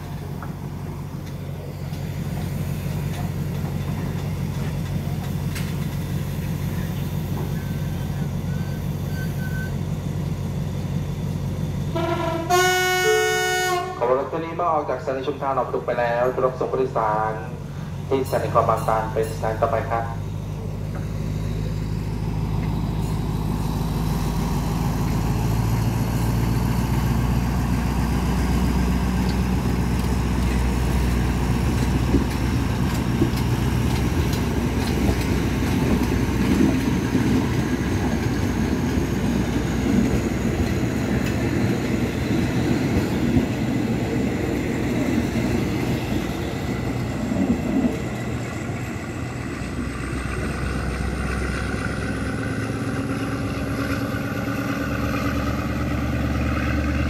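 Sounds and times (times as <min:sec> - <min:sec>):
wheels clattering on rails: 0:00.0 - 0:11.6, 0:15.2 - 0:57.0
train coaches rumbling: 0:00.0 - 0:57.0.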